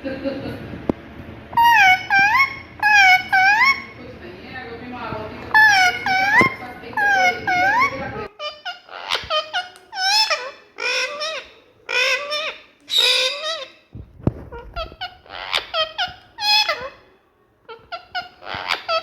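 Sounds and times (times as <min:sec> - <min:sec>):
parakeet squawking: 0:01.5 - 0:04.0, 0:05.4 - 0:13.9, 0:14.5 - 0:17.1, 0:17.7 - 0:19.0.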